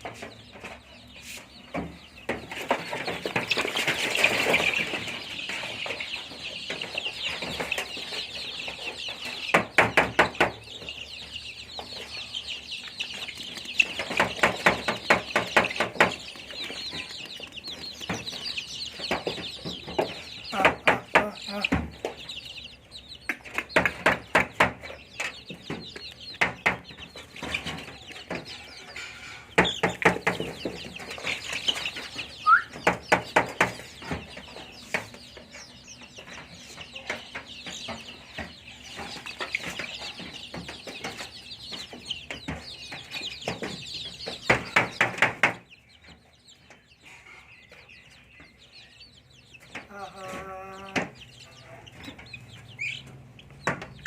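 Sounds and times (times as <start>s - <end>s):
chicks peeping and cheeping: 0.0s - 54.0s.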